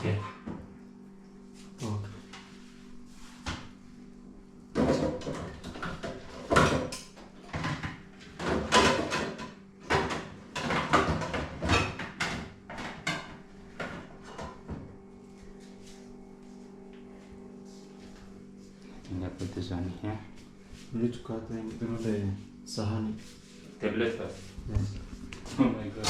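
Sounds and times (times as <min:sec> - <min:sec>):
kitchen utensils knocking and clattering: 0:04.8 - 0:14.6.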